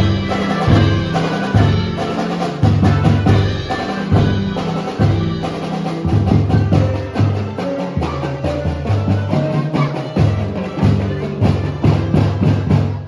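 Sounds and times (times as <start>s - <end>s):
marching band playing: 0.0s - 13.0s
quick drum strikes: 0.0s - 13.0s.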